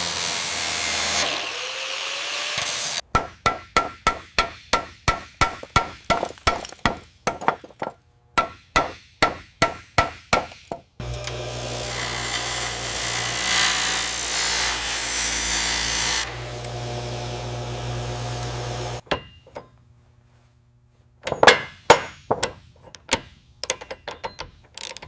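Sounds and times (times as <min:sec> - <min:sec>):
humming machine: 0:11.0 - 0:19.0
hammer striking with ring: 0:19.0 - 0:19.8.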